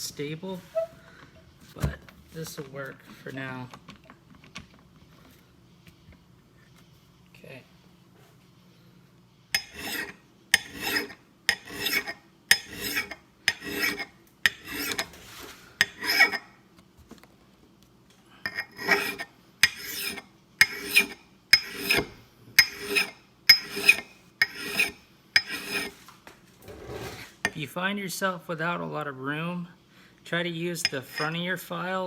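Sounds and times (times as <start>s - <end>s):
hand file rasping on steel: 9.6s - 15.1s, 15.8s - 16.5s, 18.5s - 26.0s, 30.8s - 31.4s.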